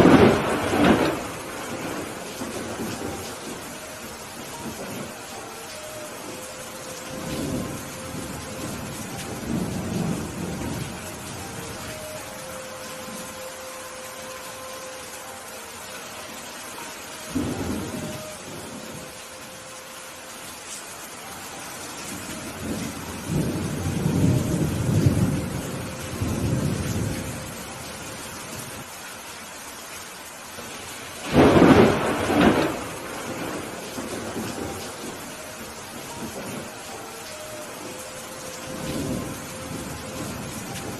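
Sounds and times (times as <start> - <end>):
thunder rumbling: 0.0 - 13.6, 16.8 - 19.3, 22.0 - 28.9, 30.6 - 40.9
steady rain: 0.0 - 40.9.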